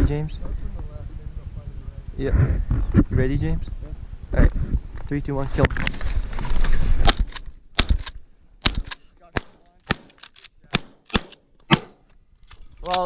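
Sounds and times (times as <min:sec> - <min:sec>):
shotgun blasts: 0:07.0 - 0:12.0.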